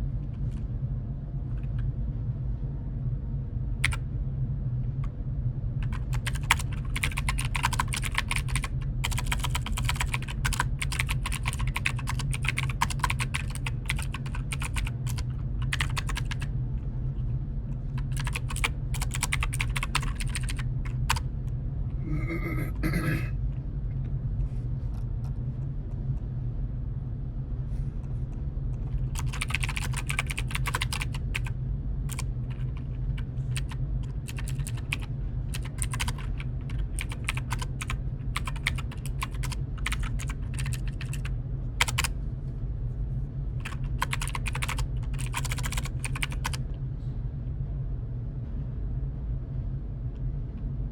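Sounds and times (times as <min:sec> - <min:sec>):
steady low hum: 0:00.0 - 0:50.9
computer keyboard typing: 0:03.8 - 0:04.0, 0:05.8 - 0:16.5, 0:18.0 - 0:21.2, 0:28.8 - 0:31.5, 0:32.1 - 0:42.1, 0:43.6 - 0:46.6.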